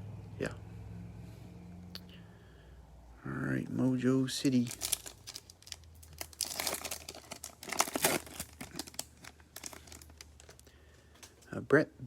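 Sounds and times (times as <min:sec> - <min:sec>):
foil wrapping crinkling: 0:04.4 - 0:11.5.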